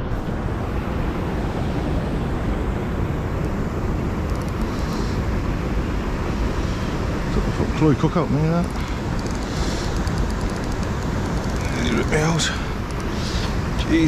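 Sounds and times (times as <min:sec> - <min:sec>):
wind buffeting microphone: 0:00.0 - 0:14.0
faint high ticks: 0:04.2 - 0:04.7, 0:08.6 - 0:11.7.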